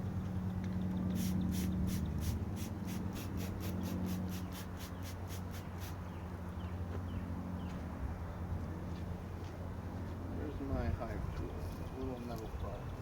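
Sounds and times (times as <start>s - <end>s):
regular scratching strokes: 1.1s - 6.0s.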